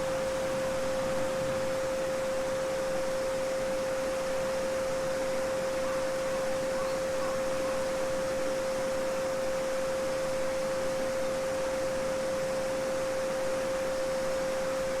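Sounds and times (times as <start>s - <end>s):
pure sine tone: 0.0s - 15.0s
babbling brook: 5.6s - 8.0s.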